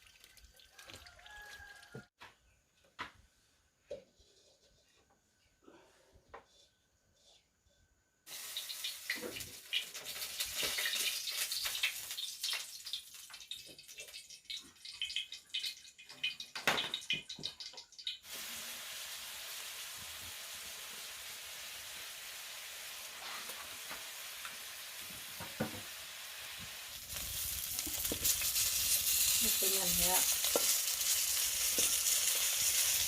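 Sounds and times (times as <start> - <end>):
food sizzling: 8.3 - 33.0.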